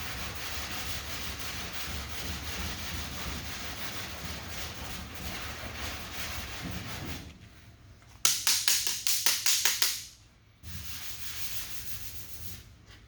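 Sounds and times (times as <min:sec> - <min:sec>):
sanding block rubbing on panel: 0:00.0 - 0:07.3, 0:10.7 - 0:12.7
loud sharp taps: 0:08.2 - 0:10.1.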